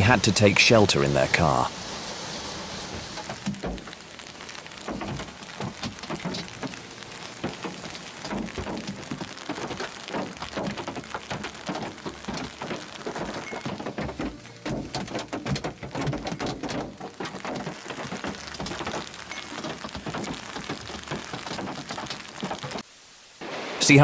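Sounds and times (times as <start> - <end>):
storm hiss: 0.0 - 14.3
hail pelting a car: 0.0 - 22.9.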